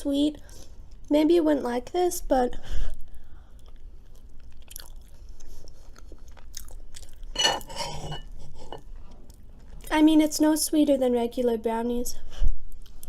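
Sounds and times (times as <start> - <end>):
chewing food: 3.5 - 9.9.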